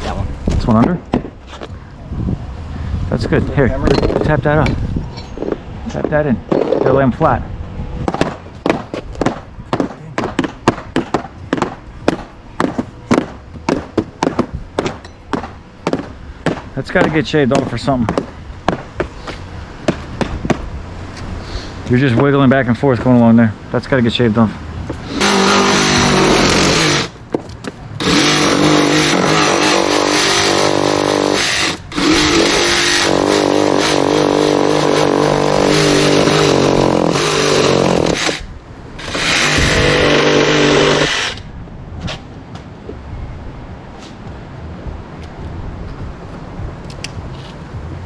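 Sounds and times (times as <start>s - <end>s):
hammer tapping: 8.1s - 19.1s
power cutting saw running: 25.0s - 27.1s, 28.0s - 38.4s, 39.0s - 41.4s.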